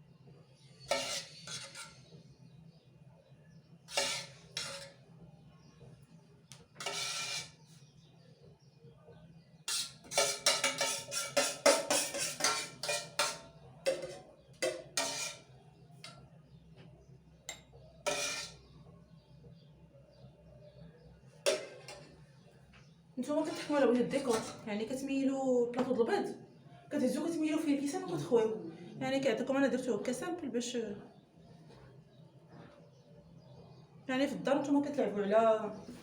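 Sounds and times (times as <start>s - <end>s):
utensils scraping: 0.8s - 2.2s, 3.9s - 5.0s, 6.8s - 7.8s, 9.7s - 15.5s, 18.1s - 18.7s, 23.4s - 24.7s
spoon tapping bowl and cups: 10.1s - 15.2s.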